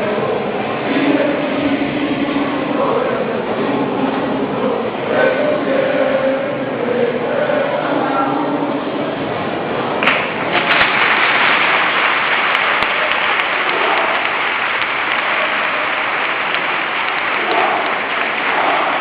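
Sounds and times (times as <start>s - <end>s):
crowd applauding: 10.0s - 19.0s.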